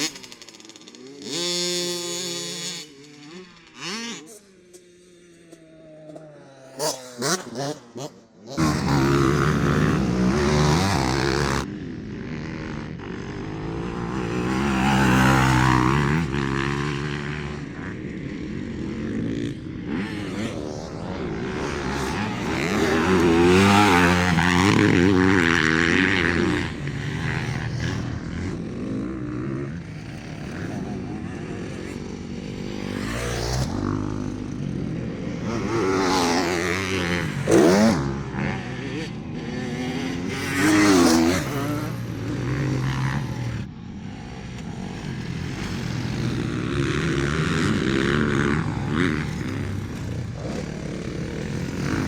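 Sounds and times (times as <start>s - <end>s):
motocross bike engine revving: 0.0s - 52.0s.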